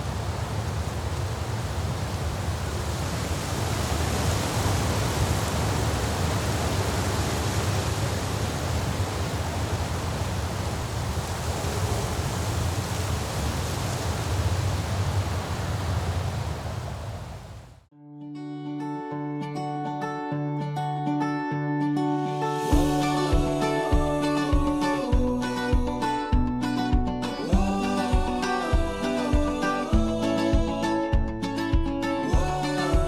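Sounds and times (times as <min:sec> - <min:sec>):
rushing outdoor noise: 0:00.0 - 0:17.9.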